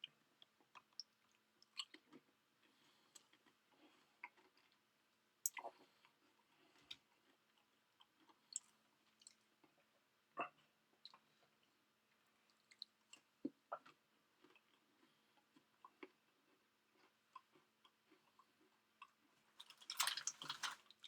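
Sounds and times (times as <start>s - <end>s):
chewing clicks and crunches: 0.0s - 4.8s, 12.5s - 21.0s.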